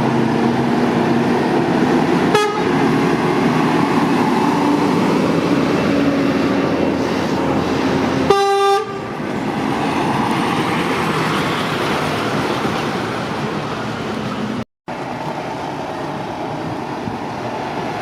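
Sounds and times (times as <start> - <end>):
traffic noise: 0.0 - 18.0
vehicle horn toot: 2.3 - 2.8, 8.3 - 9.0.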